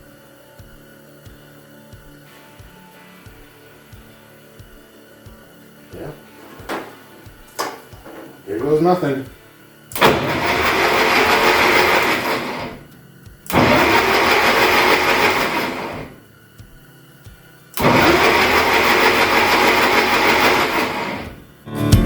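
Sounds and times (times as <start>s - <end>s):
starter motor cranking engine: 6.0s - 9.2s, 9.9s - 12.9s, 13.5s - 16.2s, 17.8s - 21.6s.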